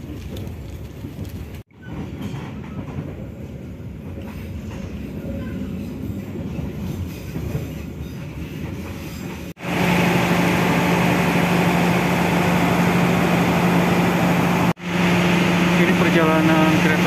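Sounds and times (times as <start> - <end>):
train wheels rumbling on rails: 0.0 - 17.0
diesel engine idling: 9.6 - 17.0.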